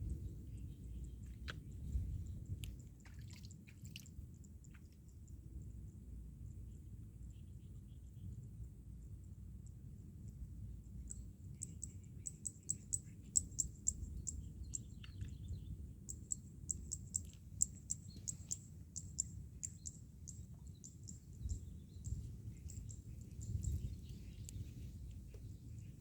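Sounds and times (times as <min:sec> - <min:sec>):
steady low rumble: 0:00.0 - 0:03.1, 0:04.1 - 0:26.0
small bird chirping: 0:10.9 - 0:26.0.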